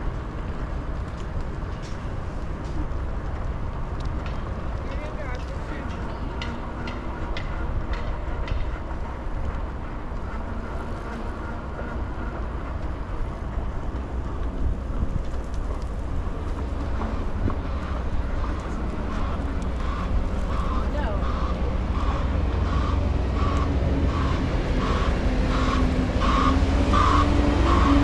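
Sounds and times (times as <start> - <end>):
city street traffic: 0.0 - 28.0
scooter riding rumble: 0.0 - 28.0
faint clicks: 1.0 - 8.8.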